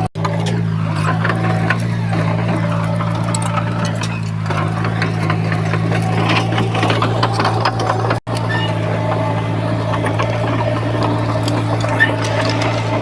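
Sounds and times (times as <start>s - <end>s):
heavy machinery diesel engine: 0.0s - 13.0s
small metallic clicks and clanks: 0.2s - 8.8s.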